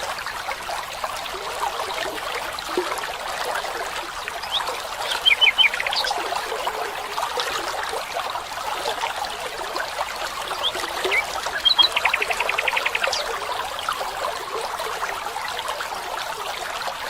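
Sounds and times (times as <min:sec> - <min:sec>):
stream trickling: 0:00.0 - 0:17.0
small birds chirping: 0:04.4 - 0:06.2, 0:10.5 - 0:13.9.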